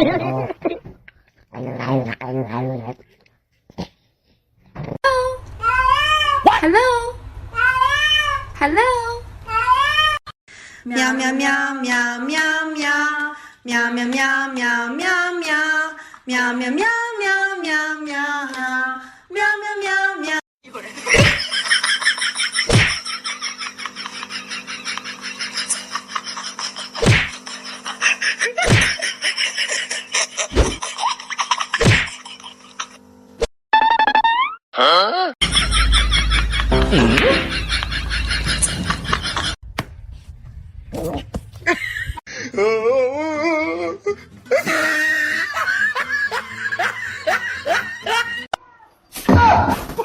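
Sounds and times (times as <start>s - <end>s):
steady hum: 35.4s - 39.6s.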